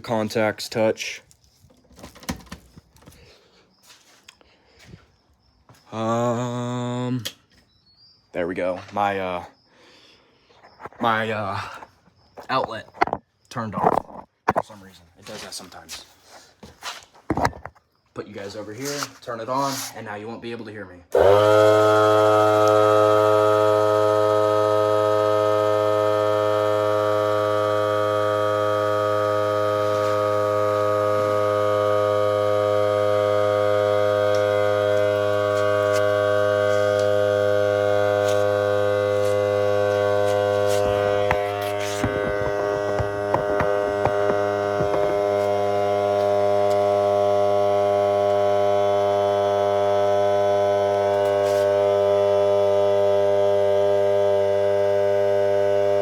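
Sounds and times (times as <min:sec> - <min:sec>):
air compressor humming: 0:00.0 - 0:07.5, 0:21.1 - 0:56.0.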